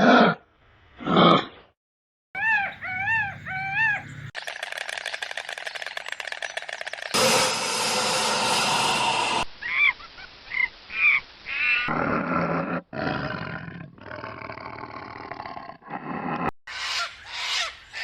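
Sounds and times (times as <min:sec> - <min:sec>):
animal calls: 0:02.4 - 0:04.3.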